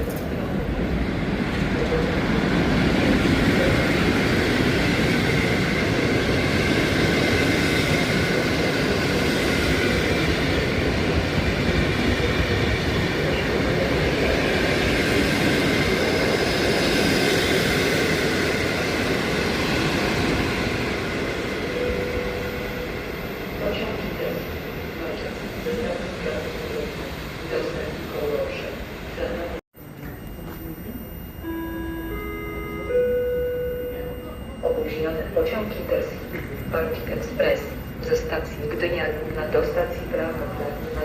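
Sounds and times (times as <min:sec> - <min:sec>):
faint high whine: 0:29.8 - 0:38.9.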